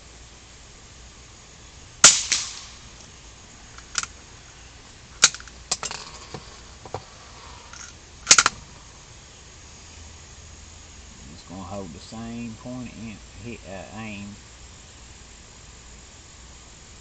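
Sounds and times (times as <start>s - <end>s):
gunshots: 2.0s - 2.8s
sharp clicks: 3.7s - 4.2s, 5.2s - 5.9s, 7.7s - 8.6s.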